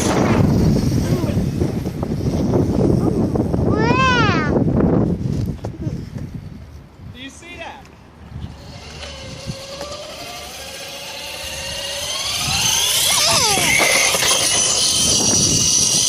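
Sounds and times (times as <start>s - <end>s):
electric motor whining: 8.4s - 16.0s.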